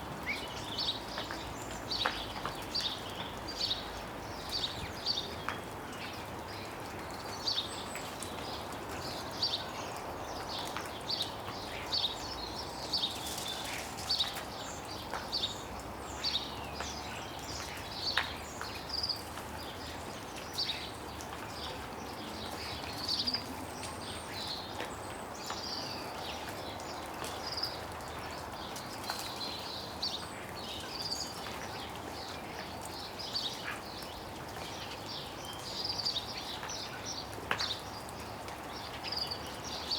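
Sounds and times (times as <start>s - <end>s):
small birds chirping: 7.3s - 39.9s
melting snow dripping: 10.0s - 16.0s.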